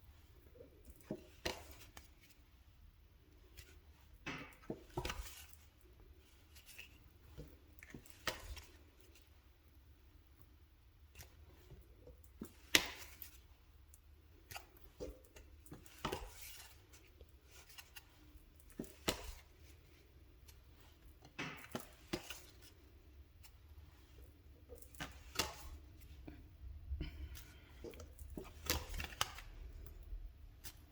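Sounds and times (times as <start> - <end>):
low steady hum: 0.0 - 30.9
cards rustling and sliding: 15.4 - 21.0, 21.7 - 26.1, 27.5 - 29.8.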